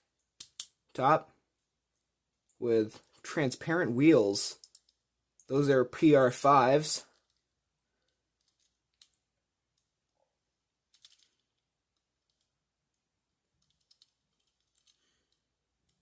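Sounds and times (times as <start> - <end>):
toy car clicking and tapping: 0.4 - 0.8.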